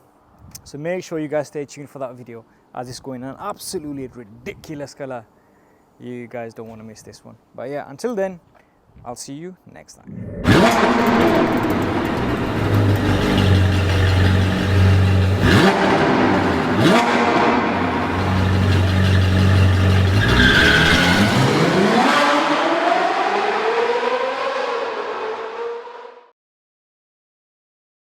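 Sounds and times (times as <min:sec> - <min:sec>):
car engine revving: 0:10.2 - 0:26.2.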